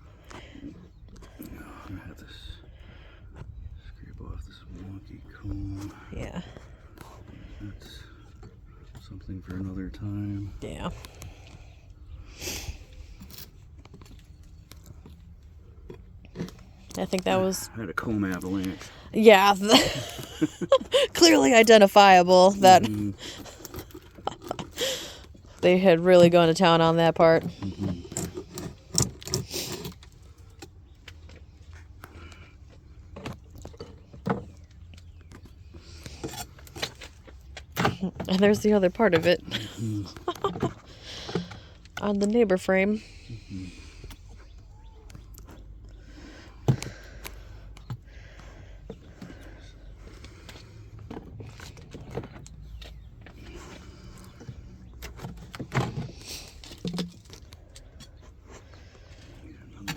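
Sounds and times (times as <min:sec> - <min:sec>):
wooden frames clicking and knocking: 0:13.2 - 0:25.6, 0:26.3 - 0:42.4, 0:44.5 - 0:59.9.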